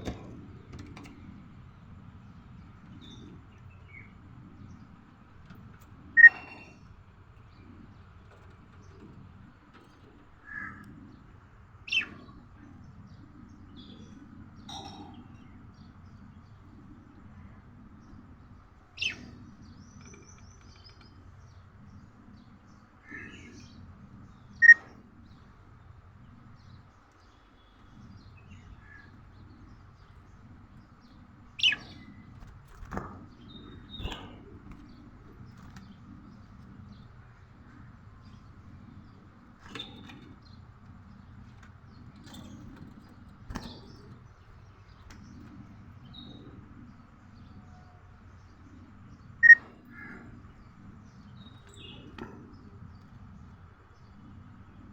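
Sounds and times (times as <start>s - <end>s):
budgerigar chirps: 6.2s - 6.6s.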